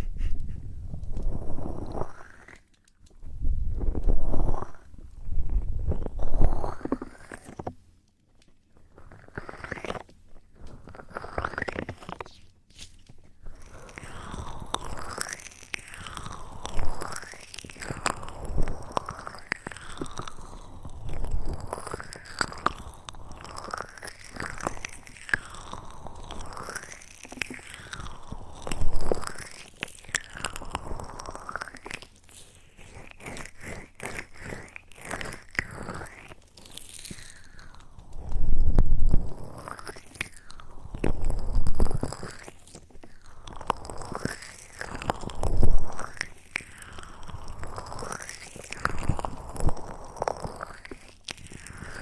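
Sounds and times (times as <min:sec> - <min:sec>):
muffled rubbing: 0:00.0 - 0:02.2
crisp clicks and crackles: 0:00.0 - 0:52.0.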